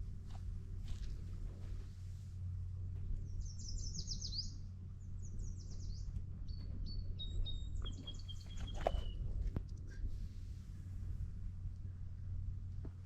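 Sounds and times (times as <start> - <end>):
low steady rumble: 0.0 - 13.0
songbird singing: 2.8 - 10.0.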